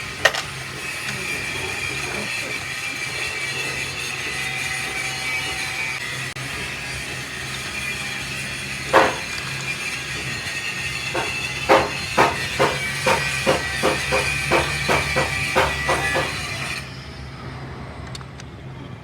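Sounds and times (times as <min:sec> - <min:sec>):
hammer blows on metal: 0:08.9 - 0:09.5, 0:11.0 - 0:16.8.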